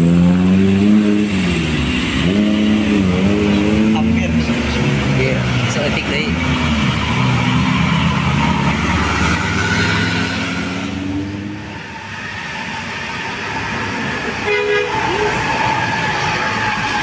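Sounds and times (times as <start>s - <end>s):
heavy vehicle engine labouring: 0.0s - 17.0s
short horn toots: 14.4s - 15.3s.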